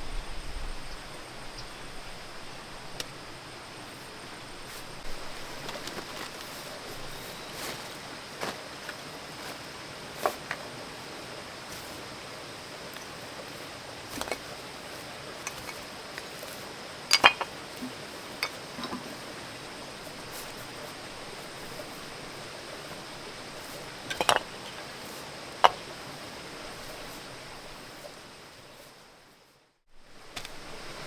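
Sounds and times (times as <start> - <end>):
steady hiss: 0.0 - 31.0
hard objects knocking and clinking: 17.1 - 19.2, 24.1 - 24.8, 25.6 - 25.8.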